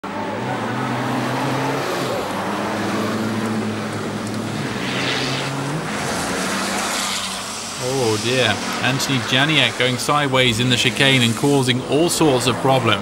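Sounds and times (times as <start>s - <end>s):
diesel truck engines running hard: 0.0s - 13.0s.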